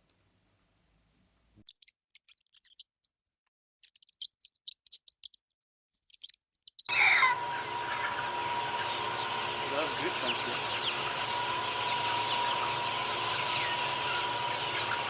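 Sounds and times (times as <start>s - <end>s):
loud noisy steady tone: 6.9s - 15.0s.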